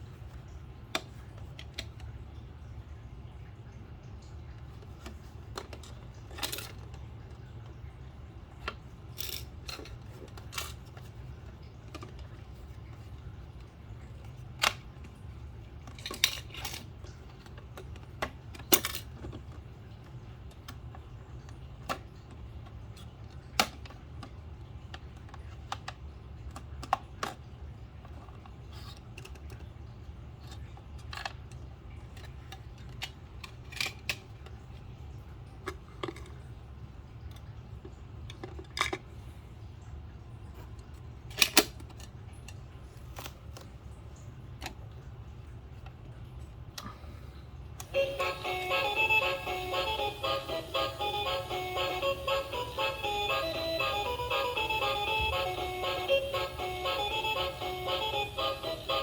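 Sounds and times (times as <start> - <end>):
plastic parts clicking and clattering: 4.7 - 7.4, 8.6 - 12.4, 15.8 - 19.6, 20.5 - 29.7, 30.4 - 34.8, 35.6 - 36.4, 38.2 - 39.1, 41.3 - 43.7.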